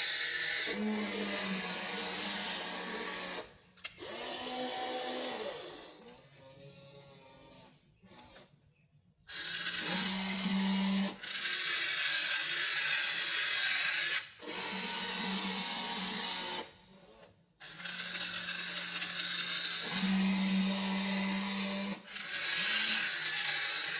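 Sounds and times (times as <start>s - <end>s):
toy excavator motors whining: 0.0s - 23.9s.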